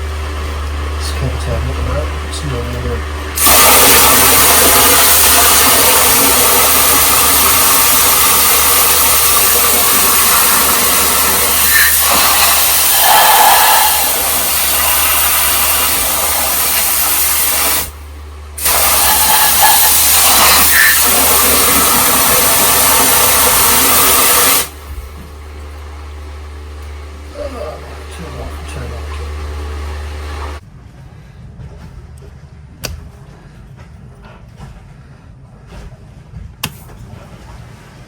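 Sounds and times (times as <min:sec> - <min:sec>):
water jet hissing: 0:03.4 - 0:25.2.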